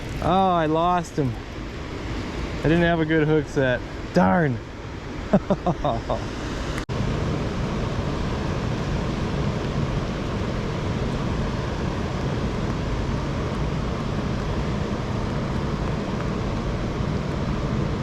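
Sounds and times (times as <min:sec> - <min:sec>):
wind buffeting microphone: 0:00.0 - 0:03.6
rain hissing: 0:00.0 - 0:04.0.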